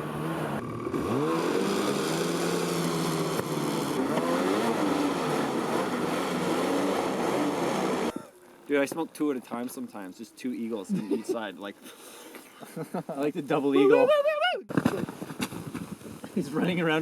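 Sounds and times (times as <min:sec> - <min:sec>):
snowmobile engine revving: 0:00.0 - 0:08.2.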